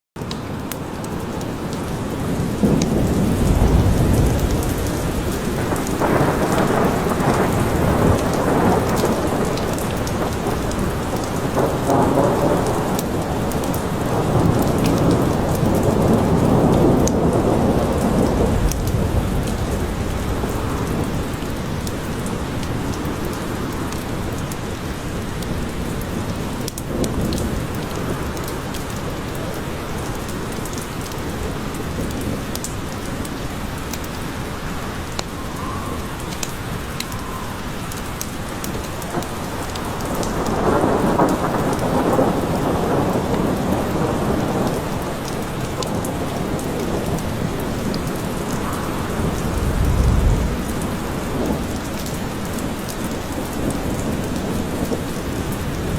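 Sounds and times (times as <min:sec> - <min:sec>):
heavy rain falling: 0:00.2 - 0:55.9
rolling thunder: 0:02.3 - 0:23.8, 0:39.1 - 0:55.9.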